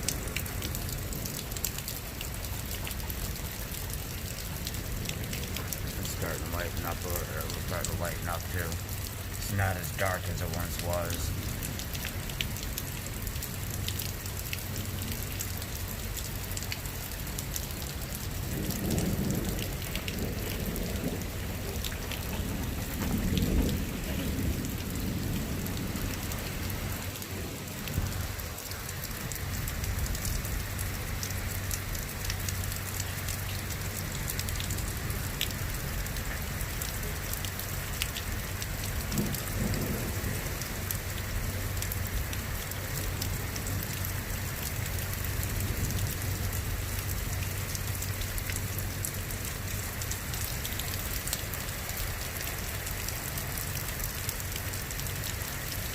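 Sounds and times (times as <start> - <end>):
rain falling: 0.0 - 55.9
raindrops ticking on a surface: 0.0 - 55.9
thunder rumbling: 18.3 - 30.8, 39.0 - 41.5.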